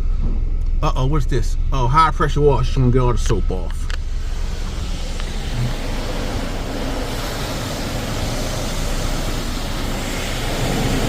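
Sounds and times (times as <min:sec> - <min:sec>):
water spraying on truck body: 0:04.0 - 0:11.0.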